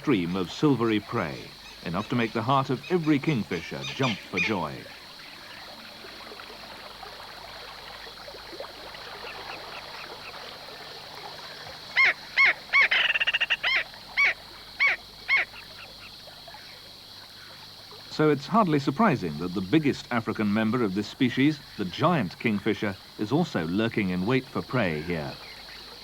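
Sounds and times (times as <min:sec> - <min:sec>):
outdoor background hiss: 0:00.0 - 0:26.0
bird calling with rattling trill: 0:00.2 - 0:05.7, 0:12.0 - 0:16.8.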